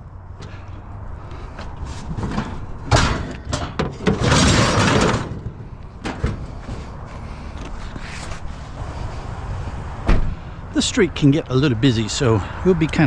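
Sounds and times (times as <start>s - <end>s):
scrap metal knocks and clunks: 1.4s - 8.1s.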